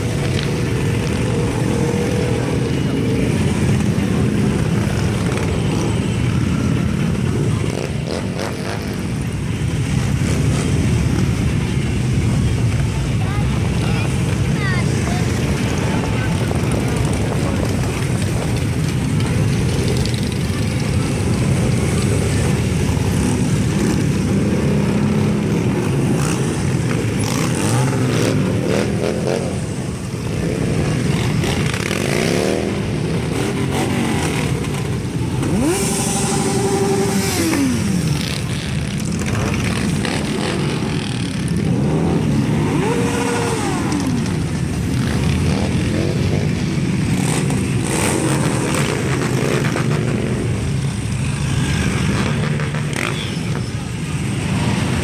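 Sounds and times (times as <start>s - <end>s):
motorcycle engines revving: 0.0s - 55.0s
motorcycles rumbling: 0.0s - 55.0s.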